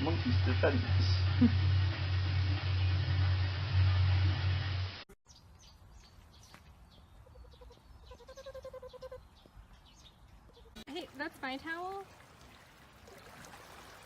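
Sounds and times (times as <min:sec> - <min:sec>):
loud low rumbling: 0:00.0 - 0:05.0
faint bird chirps: 0:05.3 - 0:10.8.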